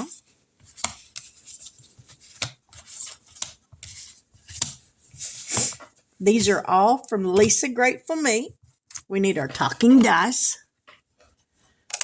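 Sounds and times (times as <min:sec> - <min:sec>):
paper rustling: 0:00.0 - 0:06.6.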